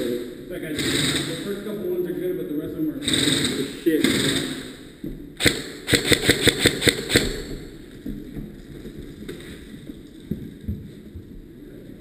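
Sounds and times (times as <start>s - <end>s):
airsoft gun shots: 0.8s - 1.4s, 3.0s - 4.8s, 5.4s - 7.7s.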